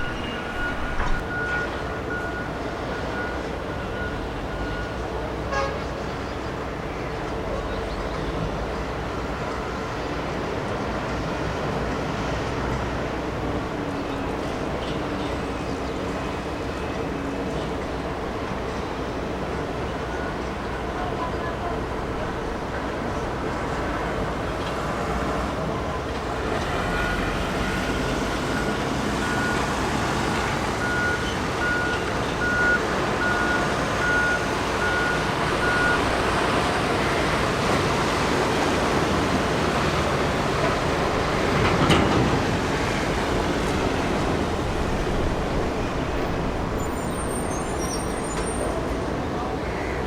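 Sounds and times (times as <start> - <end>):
thin electronic beep: 0.0 - 4.9.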